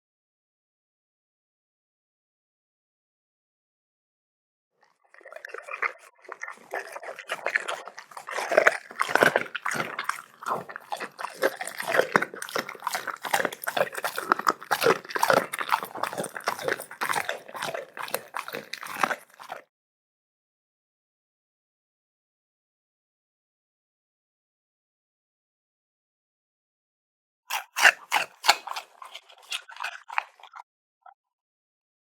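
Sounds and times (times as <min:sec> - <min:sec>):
dog chewing meat: 0:05.1 - 0:19.6, 0:27.5 - 0:30.6
teeth clicking: 0:05.2 - 0:19.6, 0:27.5 - 0:30.6.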